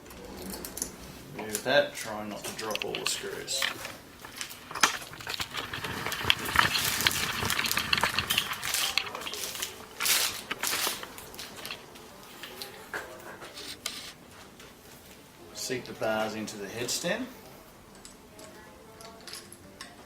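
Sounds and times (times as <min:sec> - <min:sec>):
rustling: 0:00.1 - 0:15.1
small metal clicks: 0:17.9 - 0:20.0.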